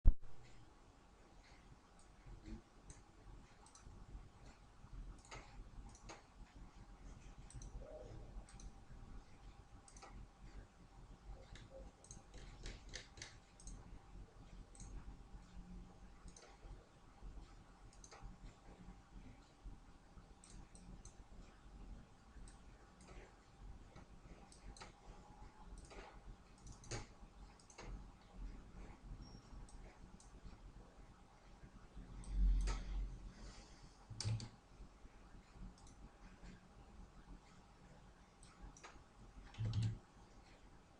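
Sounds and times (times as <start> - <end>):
low steady hum: 0.1 - 40.9
computer mouse clicks: 1.4 - 10.7, 11.3 - 16.8, 17.4 - 19.6, 20.3 - 21.5, 22.4 - 30.6, 32.2 - 34.6, 35.4 - 36.6, 38.4 - 40.6.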